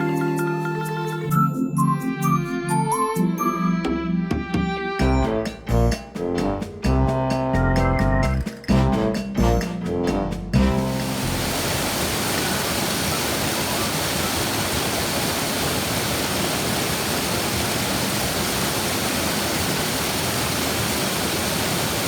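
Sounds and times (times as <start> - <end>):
waterfall rushing: 10.7 - 22.0.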